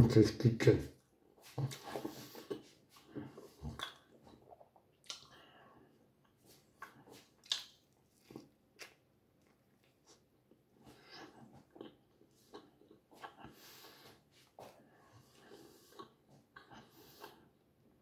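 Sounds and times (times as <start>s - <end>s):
person chewing with wet smacks: 1.4s - 17.7s.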